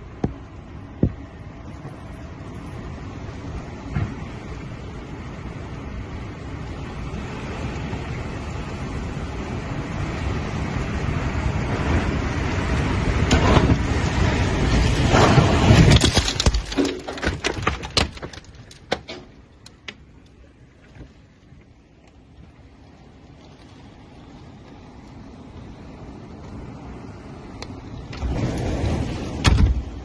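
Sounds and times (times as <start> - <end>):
tornado wind roaring: 0.0 - 30.0
debris striking house: 14.8 - 20.0.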